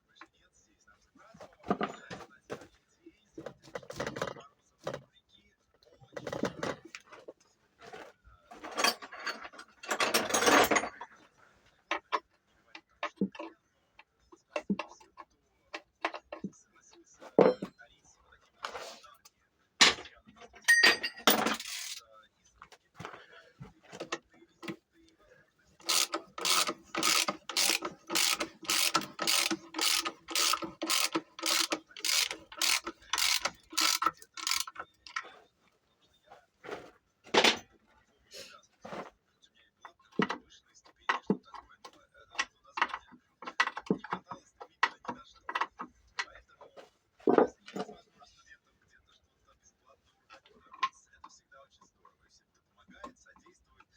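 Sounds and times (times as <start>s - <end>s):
ratchet wrench clicking: 21.2s - 22.0s, 25.8s - 35.2s.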